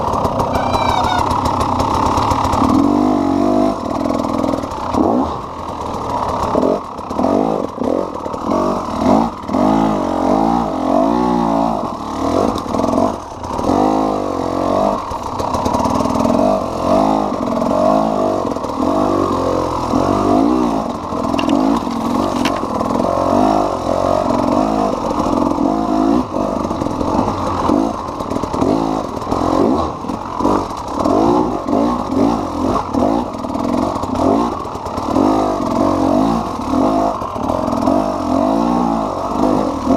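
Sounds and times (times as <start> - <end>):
two-stroke engine revving: 0.0 - 39.9.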